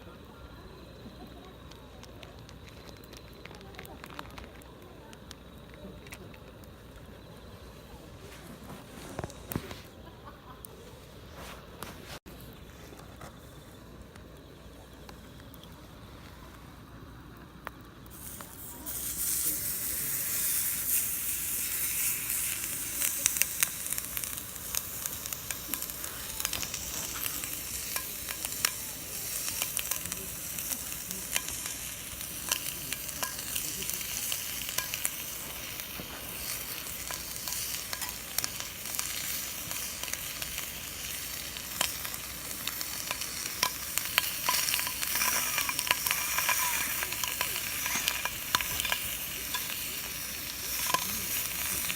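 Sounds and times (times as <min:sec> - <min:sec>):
popping and crackling: 0:00.1 - 0:51.9
food sizzling in a grill pan: 0:18.1 - 0:51.9.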